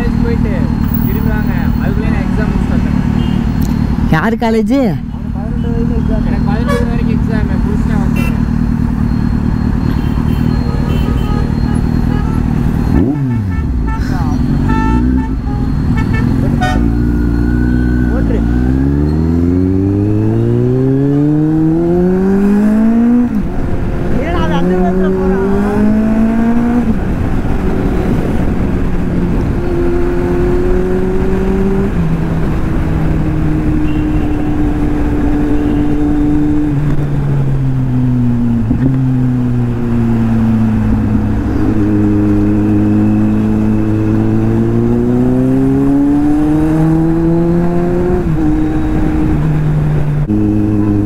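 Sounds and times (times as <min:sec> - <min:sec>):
motorcycle engine revving: 0:05.2 - 0:51.0
wind noise: 0:25.0 - 0:33.8.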